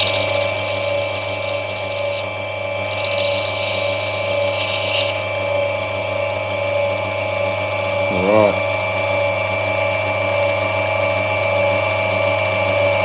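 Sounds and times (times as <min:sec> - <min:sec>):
stone grinding hiss: 0:00.0 - 0:02.3, 0:02.9 - 0:05.5
grinding wheel motor hum: 0:00.0 - 0:06.2.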